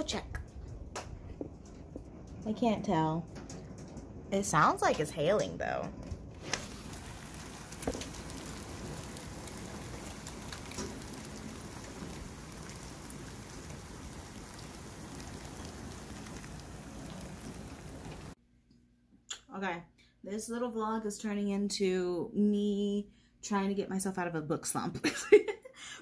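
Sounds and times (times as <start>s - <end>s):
hail ticking: 6.4s - 18.4s
steady rain downpour: 6.4s - 18.4s.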